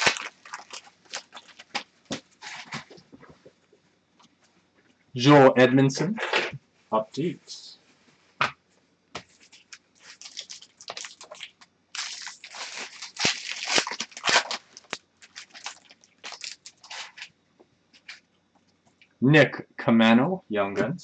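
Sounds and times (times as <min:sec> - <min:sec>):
cards and plastic packaging rustling: 0:00.0 - 0:03.4, 0:09.2 - 0:17.3.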